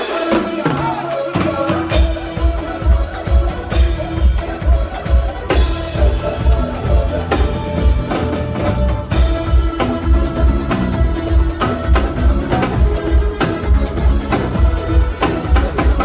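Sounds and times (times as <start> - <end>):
drum kit beat: 0.0 - 16.0
live band playing: 0.0 - 16.0
pulsing bass: 1.9 - 16.0.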